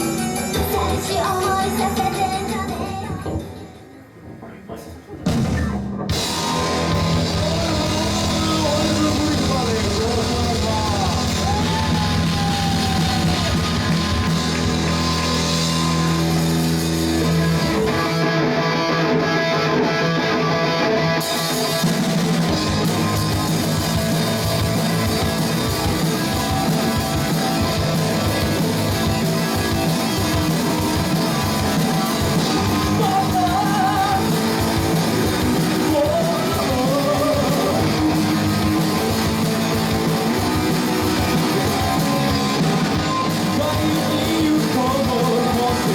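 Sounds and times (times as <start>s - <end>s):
person singing: 0.0s - 3.7s, 6.2s - 14.4s, 22.6s - 45.9s
drum kit: 0.0s - 18.6s, 21.2s - 45.9s
electric guitar: 5.2s - 45.9s.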